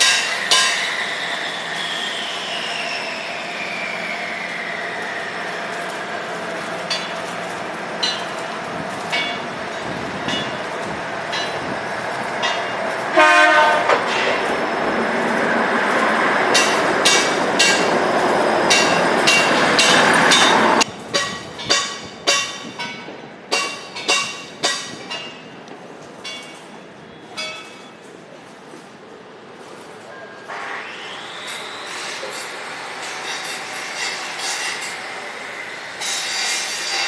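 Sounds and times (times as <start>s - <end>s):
train engine whine: 0.0s - 37.0s
wheels clicking over rail joints: 5.7s - 30.2s
train horn blast: 13.1s - 14.1s.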